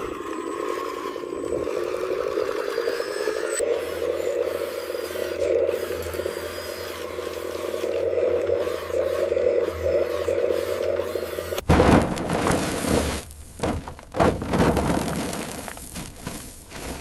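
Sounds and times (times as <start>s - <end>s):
toy motor whirring: 0.0s - 11.6s
scraping: 11.6s - 17.0s.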